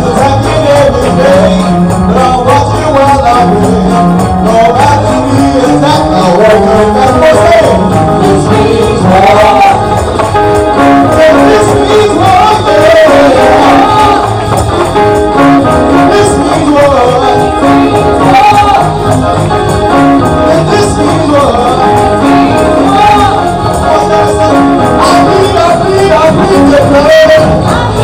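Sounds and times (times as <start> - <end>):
gospel band playing: 0.0 - 28.0
person singing: 0.0 - 28.0
tambourine: 0.0 - 28.0.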